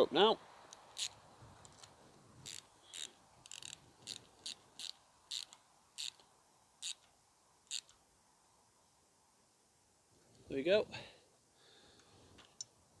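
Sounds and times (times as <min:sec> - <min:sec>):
cable tie ratcheting zip: 0:00.8 - 0:01.2, 0:02.4 - 0:06.2, 0:07.7 - 0:08.0.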